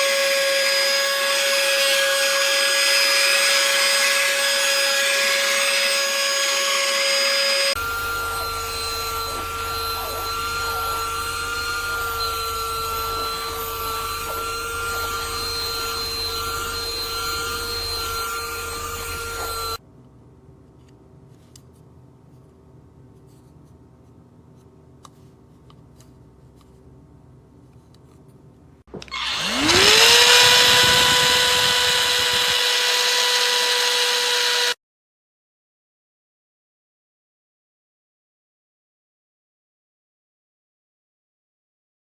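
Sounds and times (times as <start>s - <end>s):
handheld vacuum whining: 0.0s - 19.8s, 28.9s - 34.8s.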